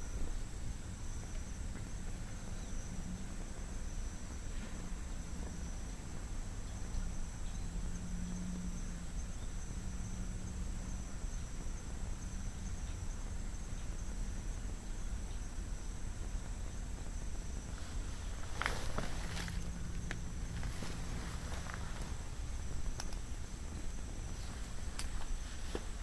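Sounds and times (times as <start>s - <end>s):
low background hum: 0.0s - 26.0s
insect chirring: 16.6s - 26.0s.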